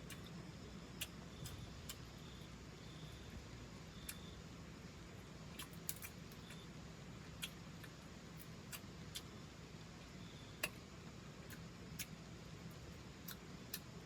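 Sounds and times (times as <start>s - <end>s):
faint low hum: 0.0s - 14.0s
sharp little clicks and snaps: 5.6s - 6.6s, 7.3s - 9.3s, 10.6s - 10.8s, 11.4s - 14.0s.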